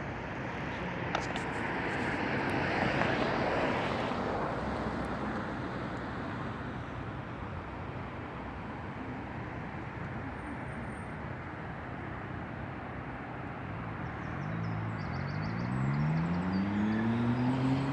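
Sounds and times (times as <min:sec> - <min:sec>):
road noise: 0:00.0 - 0:17.9
vehicle engine accelerating: 0:14.3 - 0:17.9.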